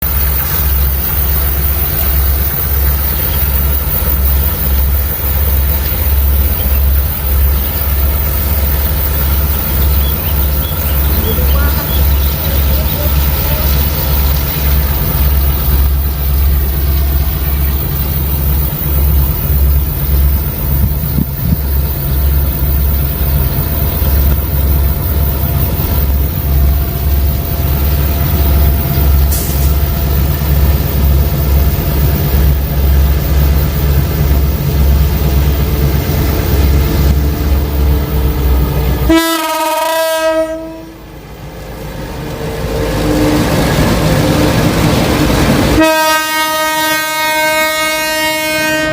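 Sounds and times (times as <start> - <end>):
locomotive engine pulsing: 0.0 - 48.9
locomotive horn blast: 37.6 - 41.1, 45.2 - 48.9.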